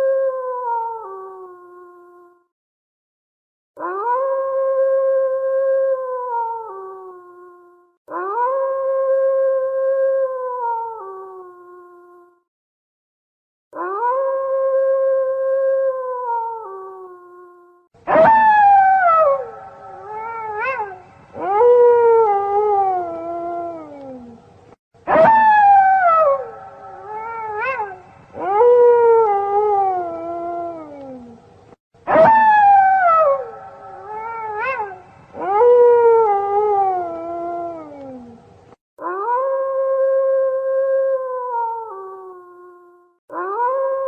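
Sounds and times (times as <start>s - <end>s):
wolf yipping: 18.1s - 22.9s, 25.1s - 30.4s, 32.1s - 38.0s
wolves howling: 18.1s - 24.4s, 25.1s - 31.4s, 32.1s - 38.4s.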